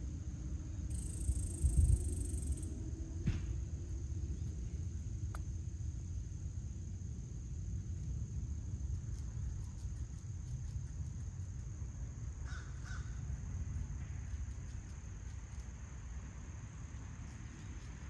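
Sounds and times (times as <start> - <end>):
low rumble: 0.0 - 9.5
insect trill: 0.0 - 18.0.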